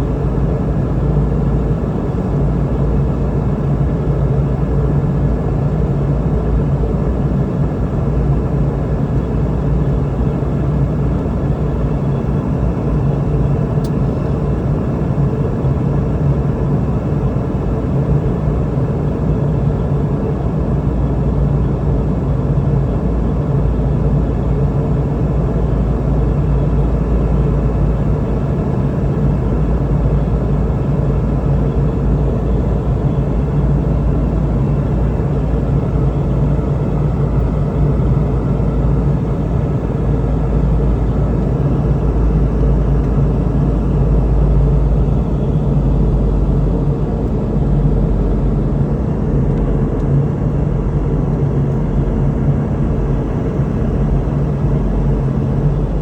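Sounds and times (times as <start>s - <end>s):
jet engines droning: 0.0s - 56.0s
low hum: 29.6s - 56.0s.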